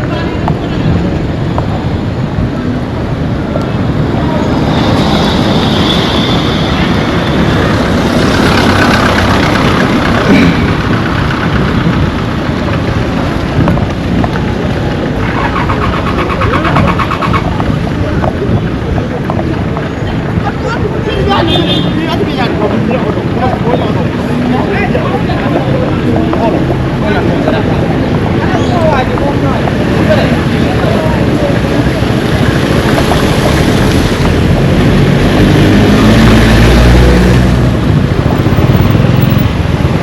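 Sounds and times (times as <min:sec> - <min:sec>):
vehicle passing by: 0:03.8 - 0:13.6, 0:29.6 - 0:40.0.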